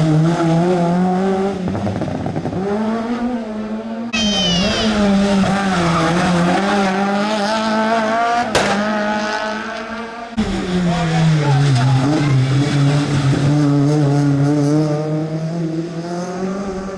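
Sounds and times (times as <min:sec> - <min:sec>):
rally car engines revving: 0:00.0 - 0:16.9
sharp crack: 0:08.4 - 0:10.0.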